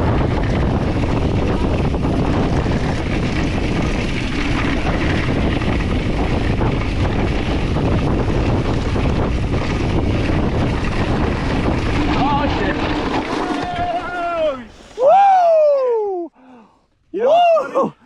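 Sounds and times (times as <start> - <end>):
bike tyre and trail rumble: 0.0 - 16.0
wind buffeting microphone: 0.0 - 16.3.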